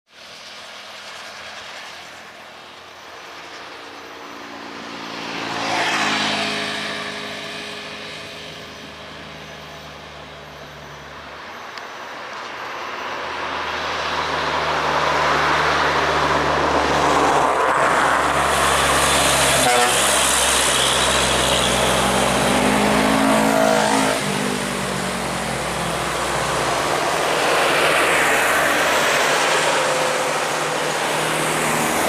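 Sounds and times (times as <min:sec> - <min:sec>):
heavy trucks climbing a hill: 0:06.8 - 0:32.0.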